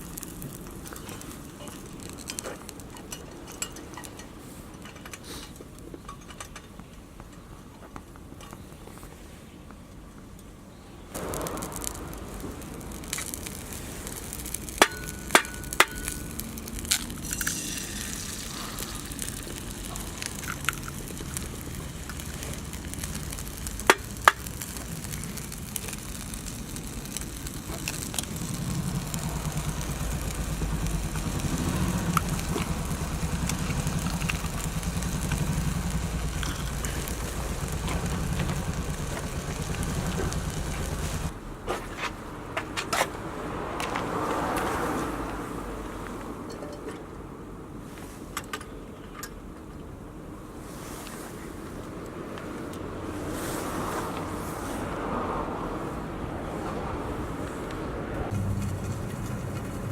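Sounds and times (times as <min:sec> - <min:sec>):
wood fire crackling: 0:00.0 - 0:06.6, 0:11.1 - 0:41.4, 0:50.6 - 0:59.9
low steady rumble: 0:11.2 - 0:41.4, 0:58.2 - 0:59.9.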